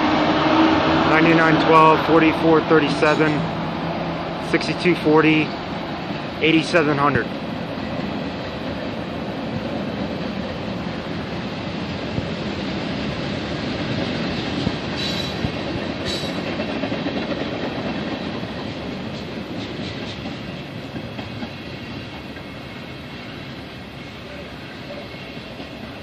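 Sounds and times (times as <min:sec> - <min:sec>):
steel wheels clattering on rails: 0:05.4 - 0:22.9, 0:24.8 - 0:26.0.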